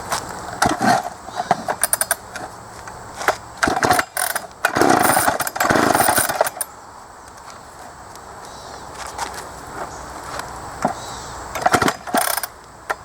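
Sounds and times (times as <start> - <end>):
chainsaw engine cranking: 0.5 - 6.7, 10.9 - 13.0.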